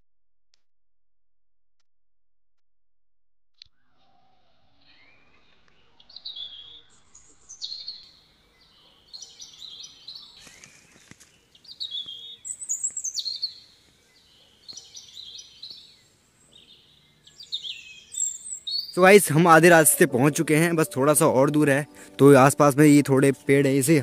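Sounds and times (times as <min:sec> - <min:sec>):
birds chirping and whistling: 0:03.8 - 0:11.0, 0:11.6 - 0:22.2.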